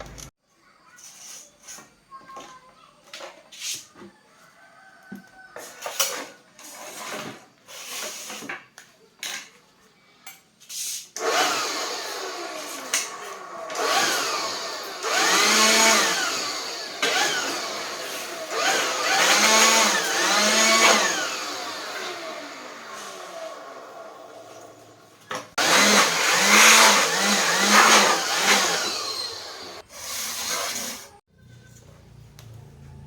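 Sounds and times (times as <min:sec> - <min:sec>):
small motor revving: 0:11.2 - 0:31.2.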